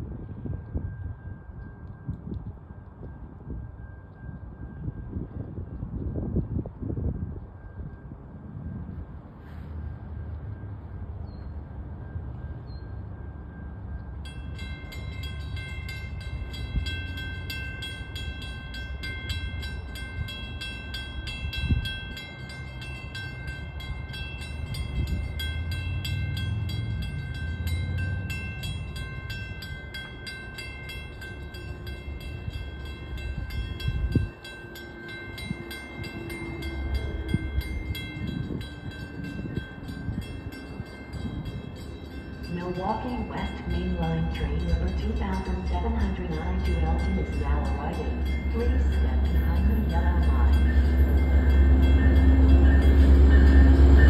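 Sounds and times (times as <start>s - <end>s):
wind rumble on microphone: 0.0s - 54.0s
high-pitched ringing: 11.8s - 54.0s
distant train horn: 31.4s - 39.0s, 42.5s - 54.0s.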